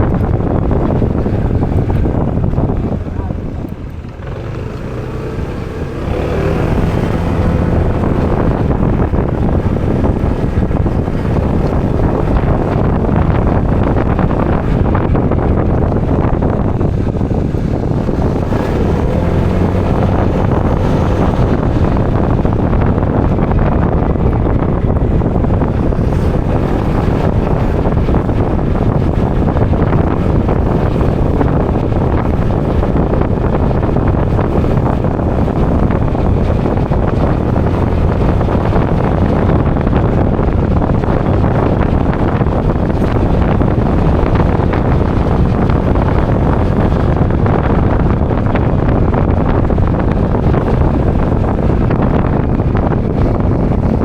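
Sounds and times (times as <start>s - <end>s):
motorbike engine running: 0.0s - 54.0s
wind buffeting microphone: 0.0s - 54.0s.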